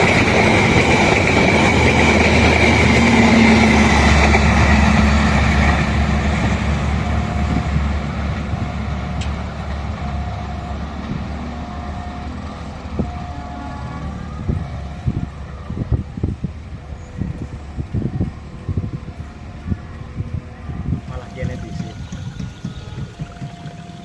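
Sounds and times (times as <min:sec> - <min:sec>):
train rumbling past: 0:00.0 - 0:24.0
high tone falling in pitch: 0:21.0 - 0:24.0.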